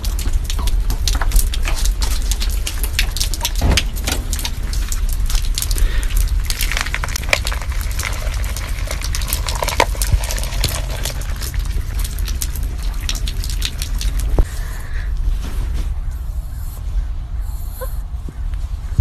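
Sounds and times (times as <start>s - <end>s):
rain drops and drips crackling: 0.0s - 14.7s
steady low rumble: 0.0s - 19.0s
dog kibble poured onto concrete: 6.5s - 11.4s.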